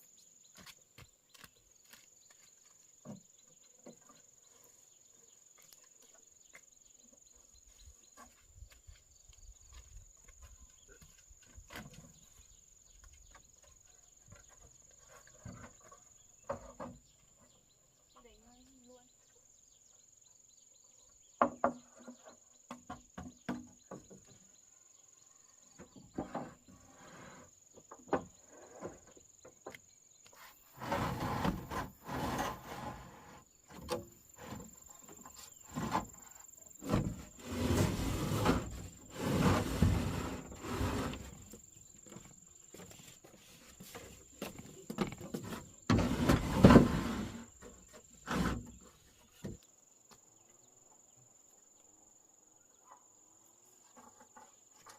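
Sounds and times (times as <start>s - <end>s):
scraping and knocking bursts: 30.8s - 34.8s.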